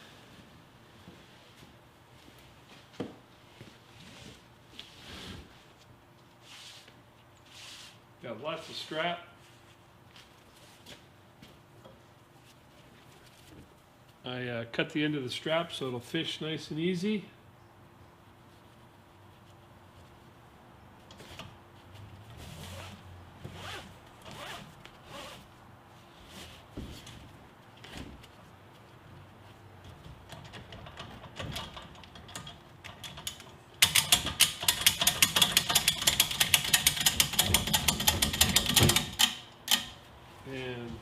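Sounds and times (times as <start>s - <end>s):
strap webbing rubbing and sliding: 3.5s - 11.0s, 21.0s - 31.8s
ratchet clicking rapidly: 33.1s - 39.8s.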